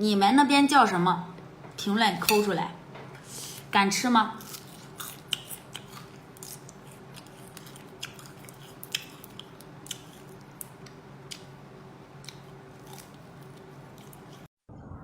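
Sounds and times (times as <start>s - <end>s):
person chewing crunchy food: 4.4s - 11.6s, 12.2s - 14.5s.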